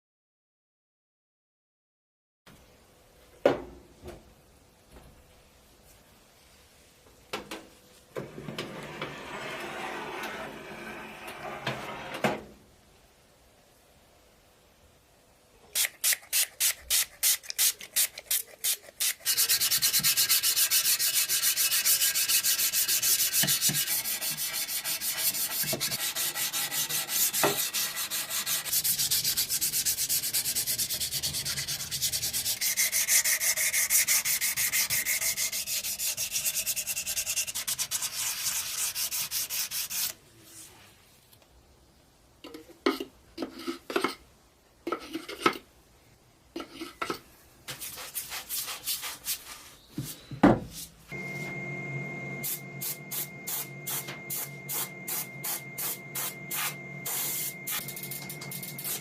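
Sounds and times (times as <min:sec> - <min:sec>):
sanding rusty metal: 0:19.2 - 0:40.1.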